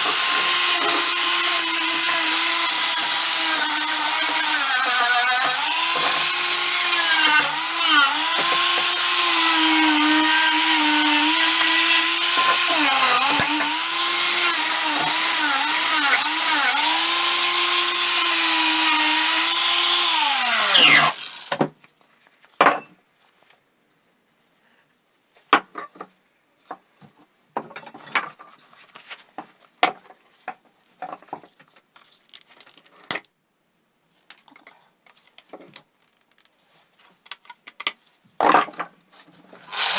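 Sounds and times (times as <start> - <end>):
electric power tool under load: 0.0 - 21.7, 39.6 - 39.9.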